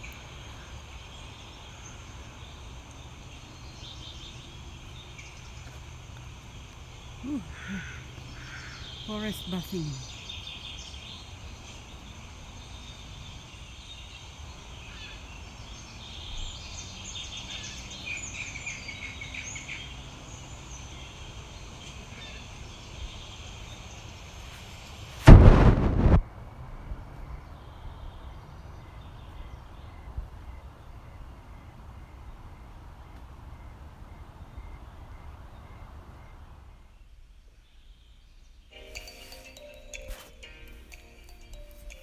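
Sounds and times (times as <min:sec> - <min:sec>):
birds chirping: 0:00.0 - 0:25.2, 0:38.7 - 0:42.0
insects buzzing: 0:00.0 - 0:25.7, 0:38.8 - 0:42.0
loud broadband blast: 0:25.2 - 0:26.2.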